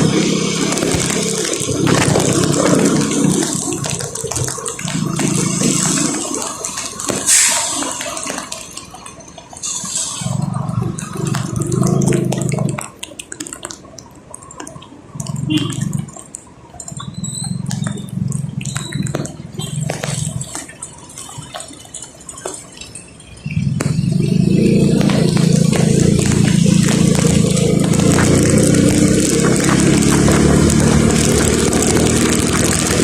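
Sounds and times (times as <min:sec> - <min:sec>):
vehicle engine running: 0:00.0 - 0:06.1, 0:23.5 - 0:33.0
rain dripping and tapping: 0:00.0 - 0:33.0.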